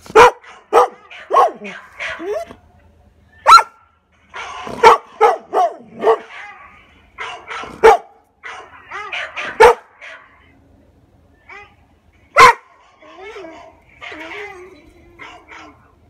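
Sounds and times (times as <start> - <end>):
dog barking: 0.1 - 2.5, 3.4 - 6.6, 7.2 - 10.4, 12.4 - 12.9, 15.2 - 15.9.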